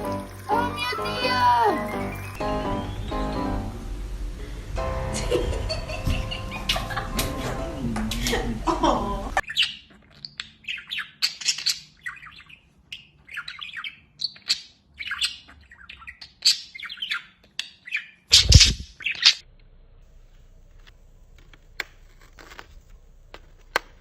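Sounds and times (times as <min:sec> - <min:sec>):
bird squawking and chirping: 0:00.0 - 0:03.5, 0:09.4 - 0:19.4
music: 0:00.0 - 0:08.2.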